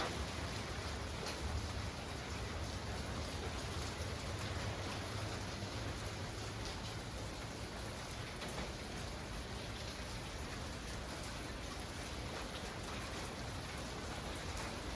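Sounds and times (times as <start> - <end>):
raindrop ticks: 0.0 - 2.7, 3.4 - 7.4
rain falling: 0.0 - 14.9.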